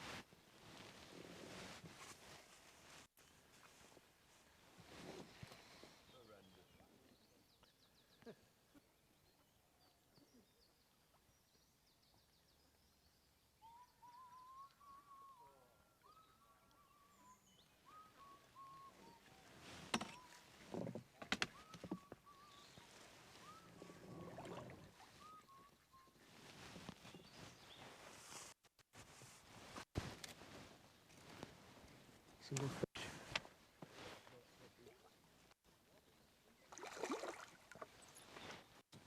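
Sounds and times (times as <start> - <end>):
bird calling repeated notes: 21.4 - 23.9, 25.0 - 26.2.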